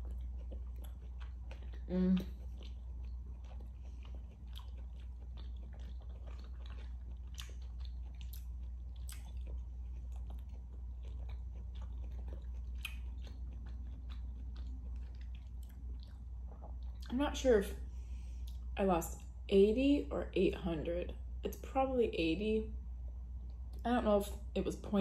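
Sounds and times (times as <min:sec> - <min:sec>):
wet chewing mouth clicks: 0:00.0 - 0:17.1
steady low hum: 0:00.0 - 0:25.0.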